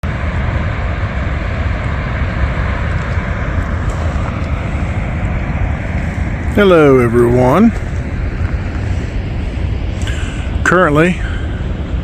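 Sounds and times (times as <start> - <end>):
heavy low rumble: 0.0 - 12.0
water rushing through spillway: 0.0 - 12.0.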